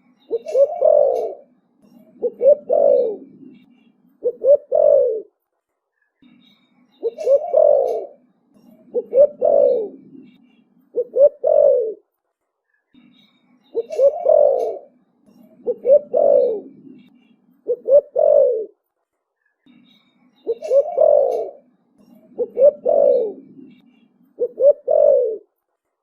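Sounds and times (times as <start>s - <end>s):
dove cooing: 0.3s - 5.3s, 7.0s - 8.2s, 8.8s - 12.0s, 13.8s - 18.8s, 20.5s - 23.8s, 24.4s - 25.5s.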